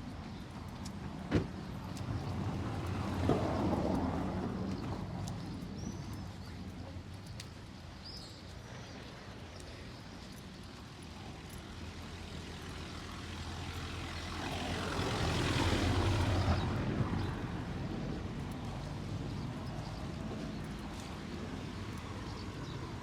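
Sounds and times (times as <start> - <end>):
motor vehicle passing by: 11.6 - 23.0.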